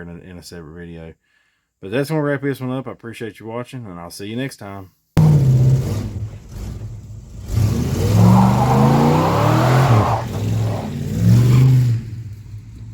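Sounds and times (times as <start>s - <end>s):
car engine revving: 5.2s - 12.9s.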